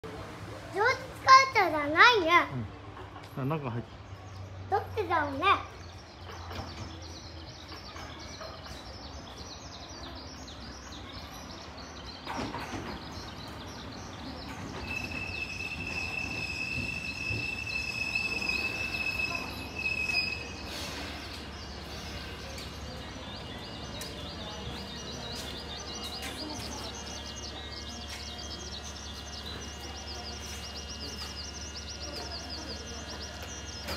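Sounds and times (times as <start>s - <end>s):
birds chirping: 3.3s - 33.9s
electric train running noise: 11.6s - 33.9s
high-pitched brake squeal: 14.8s - 22.3s.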